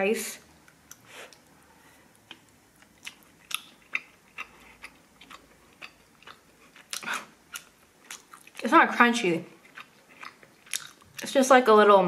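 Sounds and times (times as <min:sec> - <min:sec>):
chewing rice: 0:02.1 - 0:08.6, 0:09.6 - 0:11.3.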